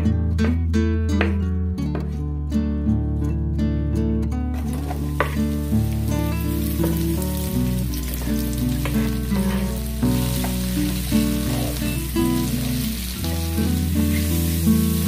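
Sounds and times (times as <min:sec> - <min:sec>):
background music: 0:00.0 - 0:15.0
mushrooms sizzling in oil: 0:04.7 - 0:15.0.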